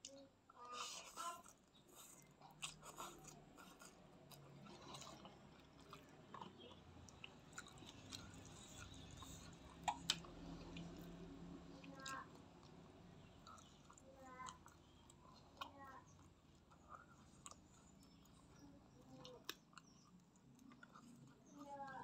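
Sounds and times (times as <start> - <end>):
chewing noodles: 0.0 - 22.0
wet mouth clicks: 6.4 - 11.1.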